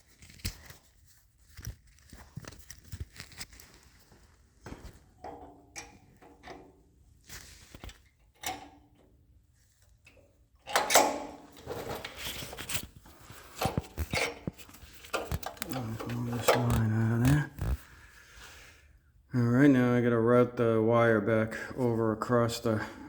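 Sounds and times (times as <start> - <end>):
clicks and knocks of parts handled: 0.1 - 3.9, 4.7 - 9.1, 9.8 - 17.8
rubbing and clatter: 11.4 - 17.8.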